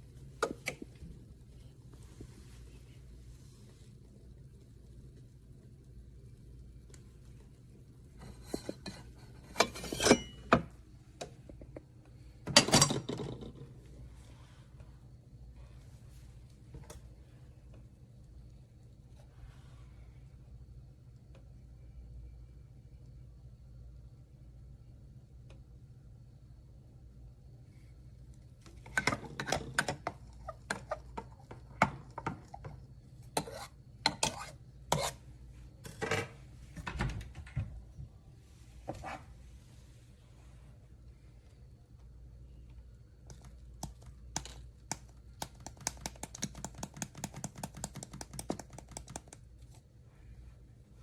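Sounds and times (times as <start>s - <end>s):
faint low hum: 0.0s - 51.0s.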